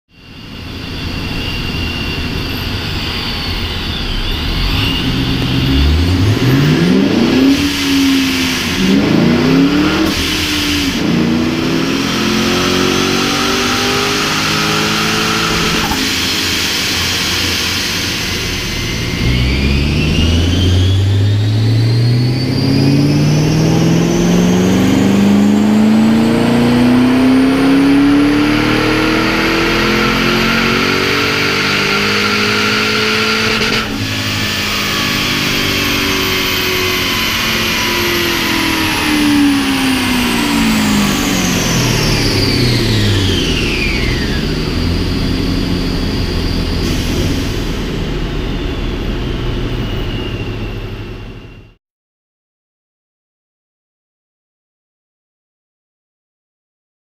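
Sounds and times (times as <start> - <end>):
supercharger whine: 0.1 - 51.8
supercharged car engine revving: 0.3 - 51.4.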